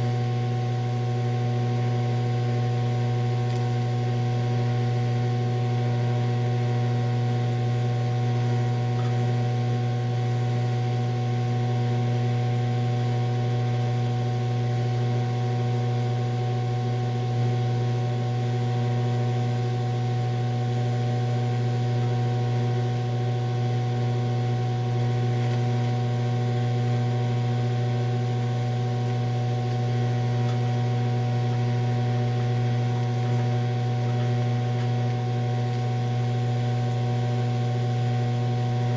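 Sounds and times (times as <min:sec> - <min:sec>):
welding machine humming: 0:00.0 - 0:38.9.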